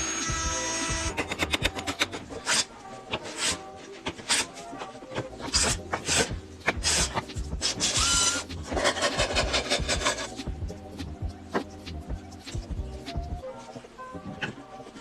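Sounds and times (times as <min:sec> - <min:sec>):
hand tool scraping wood: 0:00.9 - 0:10.5.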